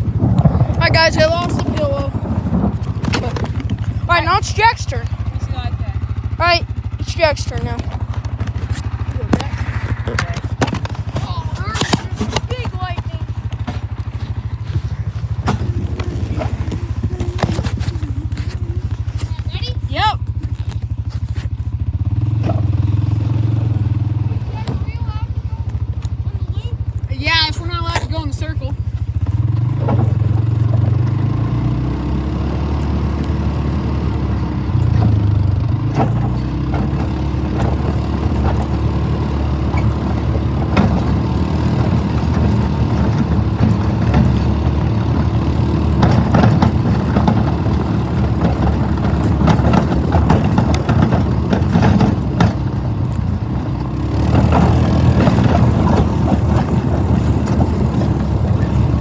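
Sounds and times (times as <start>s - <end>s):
wagon knocks and rattles: 0.0s - 21.6s, 22.2s - 59.0s
atv engine running: 0.0s - 59.0s.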